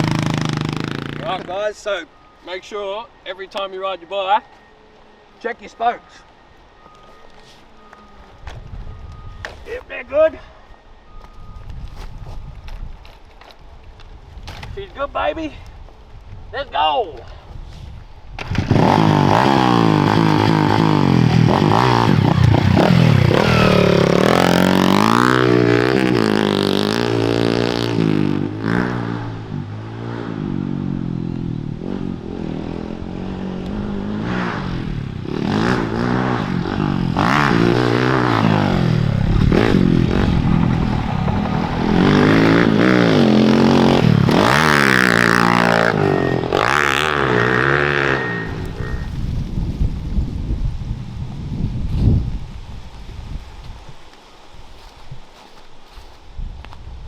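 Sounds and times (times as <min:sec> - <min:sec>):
motorbike engine revving: 0:00.0 - 0:01.6, 0:18.4 - 0:49.7.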